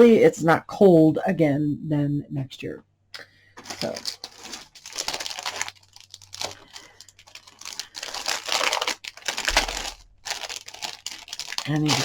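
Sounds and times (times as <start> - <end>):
plastic packaging crinkling: 3.6 - 12.0.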